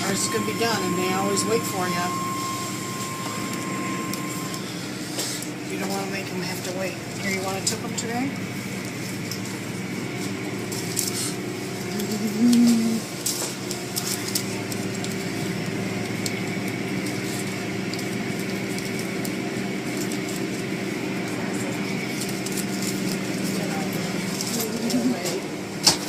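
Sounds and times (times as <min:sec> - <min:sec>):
low tone: 0:00.0 - 0:13.1
car wash machinery hum: 0:00.0 - 0:26.0.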